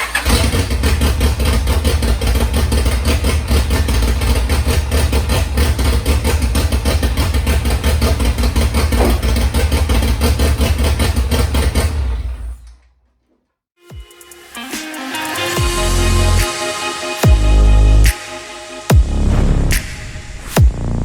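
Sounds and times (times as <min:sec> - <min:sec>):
engine cranking: 0:00.0 - 0:13.0.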